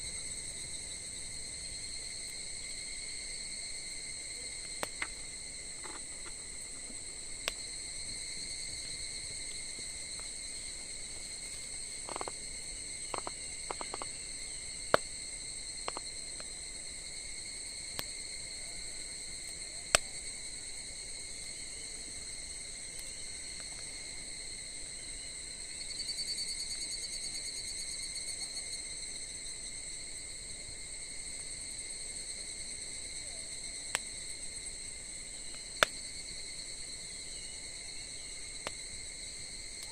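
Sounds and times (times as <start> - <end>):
crickets trilling: 0.0 - 39.9
wood fire crackling and popping: 4.6 - 7.7, 8.7 - 12.4, 13.0 - 14.2.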